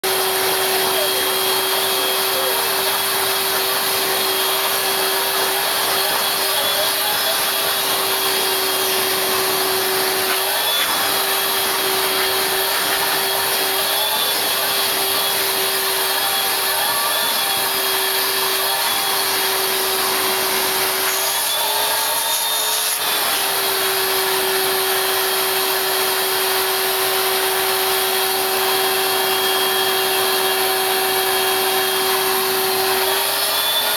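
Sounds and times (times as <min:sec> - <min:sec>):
vacuum cleaner running: 0:00.0 - 0:33.9.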